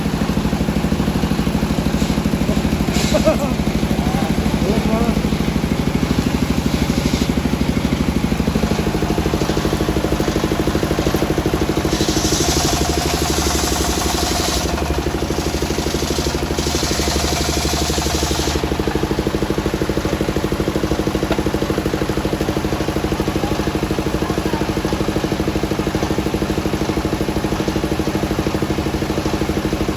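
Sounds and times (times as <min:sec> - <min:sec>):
sawmill engine running: 0:00.0 - 0:29.9
hiss: 0:01.9 - 0:03.3, 0:11.8 - 0:14.8, 0:15.9 - 0:18.7.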